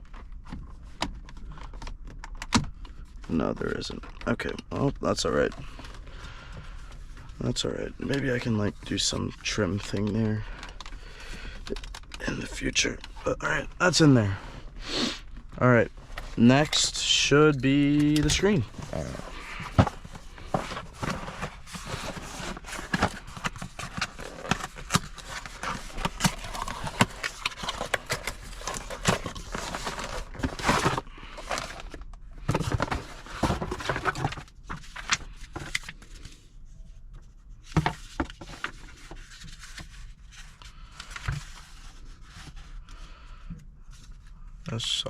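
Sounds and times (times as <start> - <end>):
rustling: 15.2 - 35.1.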